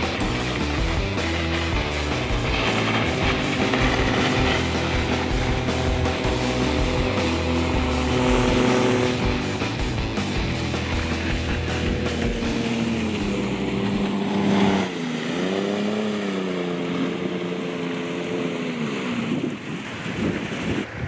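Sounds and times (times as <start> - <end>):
jet boat engine running: 0.0 - 21.0
wind buffeting microphone: 19.1 - 21.0.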